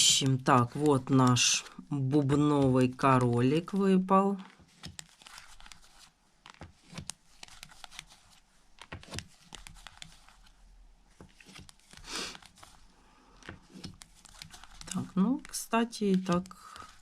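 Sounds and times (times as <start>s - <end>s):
playing cards slapping: 4.4s - 10.5s, 11.2s - 17.0s
cards sliding rustle: 4.4s - 17.0s.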